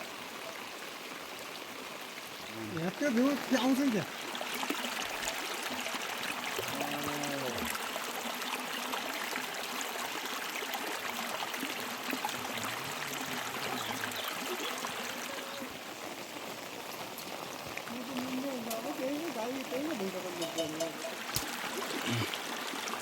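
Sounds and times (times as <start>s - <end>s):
heavy rain: 0.0s - 8.7s, 9.6s - 23.0s
rushing runoff water: 0.0s - 23.0s
low animal call: 6.6s - 7.7s.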